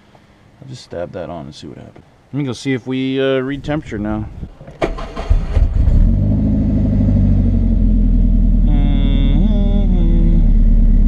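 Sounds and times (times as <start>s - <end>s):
car engine idling: 6.3s - 11.0s
person humming: 8.6s - 11.0s.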